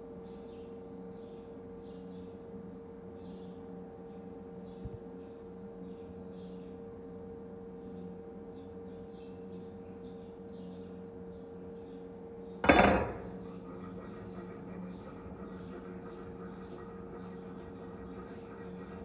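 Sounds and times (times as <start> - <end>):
loud metal clank: 12.6 - 13.6
steady low hum: 12.6 - 19.0.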